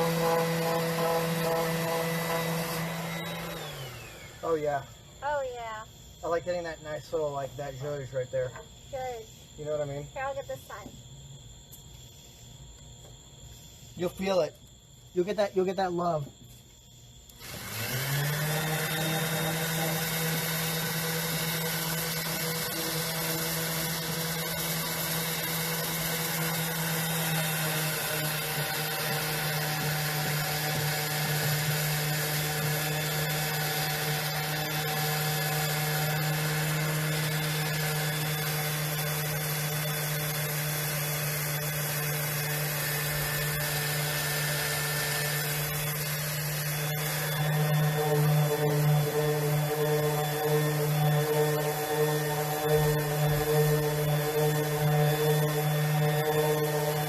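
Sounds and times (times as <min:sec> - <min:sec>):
electric sander running: 0:00.0 - 0:05.0, 0:17.3 - 0:57.0.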